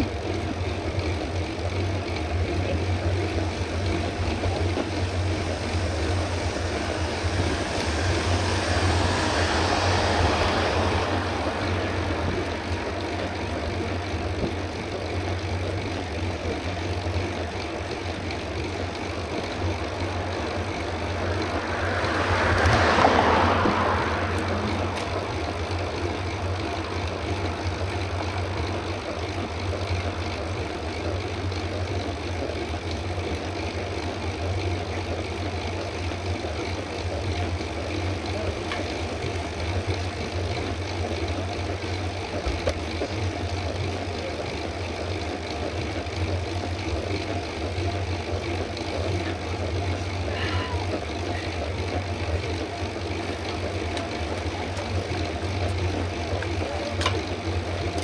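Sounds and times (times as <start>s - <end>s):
bicycle tyre rumble: 0.0s - 58.0s
wind rush: 4.1s - 12.9s.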